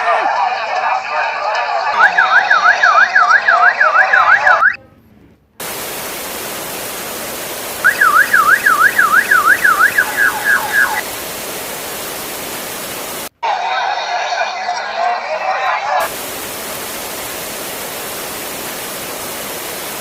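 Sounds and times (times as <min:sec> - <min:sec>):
warbling alarm siren: 0:02.0 - 0:04.8, 0:07.8 - 0:11.1
loud steady rushing hiss: 0:05.6 - 0:13.4, 0:16.0 - 0:20.0.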